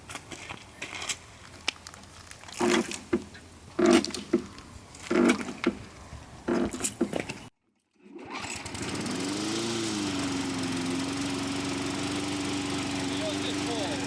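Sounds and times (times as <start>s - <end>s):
lawn mower engine starting: 8.0s - 14.0s.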